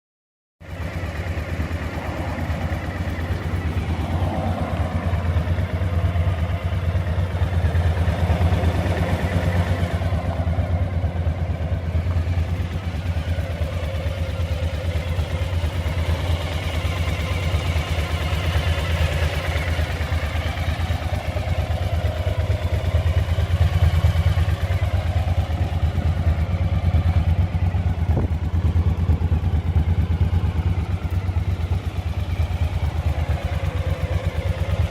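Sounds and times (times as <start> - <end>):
motorcycle engine idling: 0.6 - 34.9.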